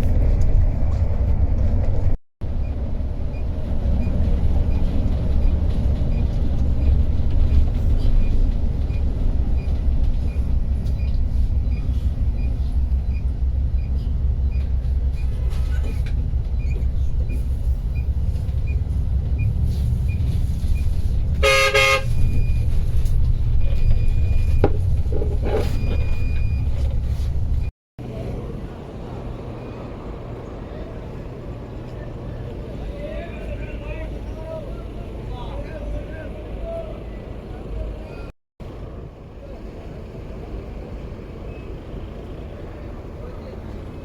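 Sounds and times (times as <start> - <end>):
coach engine and road rumble: 0.0 - 44.0
short high horn toots: 21.4 - 22.2
vehicle horn: 21.4 - 22.2.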